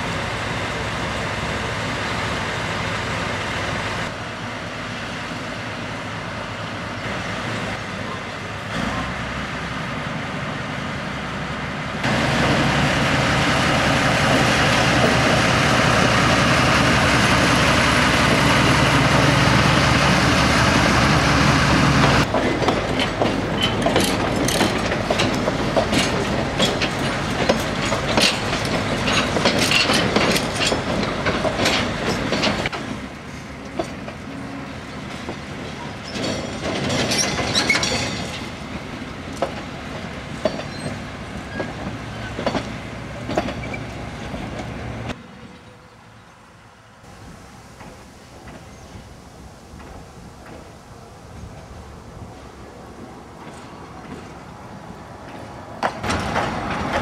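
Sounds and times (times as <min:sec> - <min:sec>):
diesel locomotive engine: 0:00.0 - 0:57.0
wheels clicking over rail joints: 0:13.6 - 0:45.2, 0:53.3 - 0:57.0.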